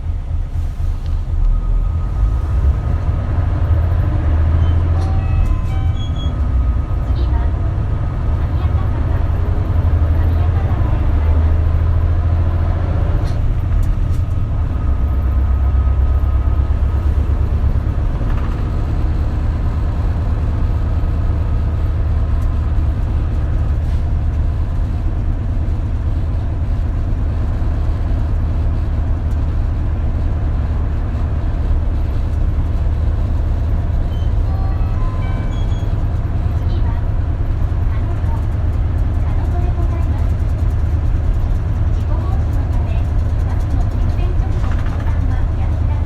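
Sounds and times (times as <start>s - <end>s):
bus engine drone: 0.0s - 46.0s
road noise: 0.0s - 46.0s.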